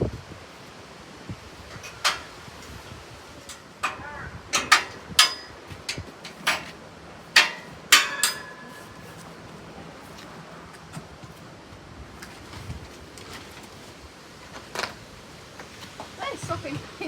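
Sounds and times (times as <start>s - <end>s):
metallic knocks and clanks: 1.7s - 2.8s, 3.4s - 9.1s.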